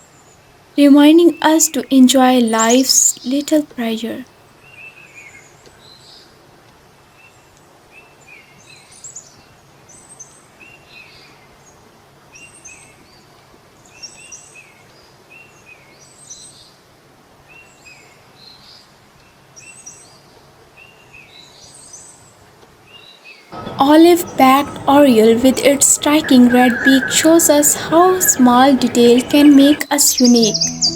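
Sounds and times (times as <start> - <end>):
steady background hiss: 0.0 - 5.3, 22.9 - 30.9
small bird chirping: 2.2 - 4.2, 23.6 - 30.9.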